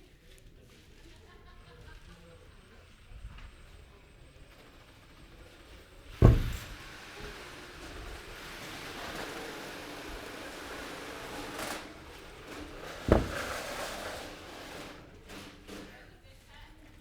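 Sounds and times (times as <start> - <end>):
sharp thumps: 6.2 - 6.8, 13.1 - 13.8.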